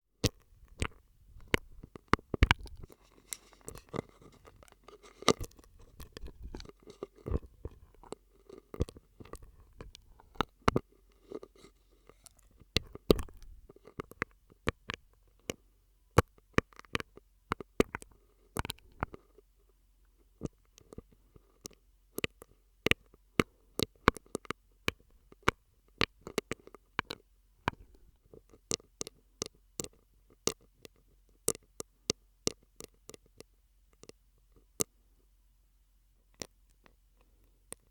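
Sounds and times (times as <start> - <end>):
wet mouth clicks and pops: 0.2 - 2.9, 5.2 - 10.8, 12.8 - 14.0.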